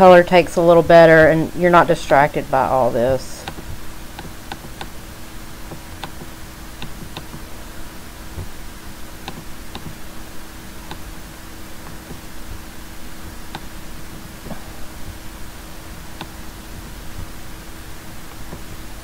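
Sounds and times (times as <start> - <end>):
faint low hum: 0.0 - 19.0
microphone hiss: 0.0 - 19.0
computer mouse clicking: 3.4 - 5.0, 5.7 - 7.5, 9.2 - 10.0, 10.8 - 11.1, 16.2 - 17.3.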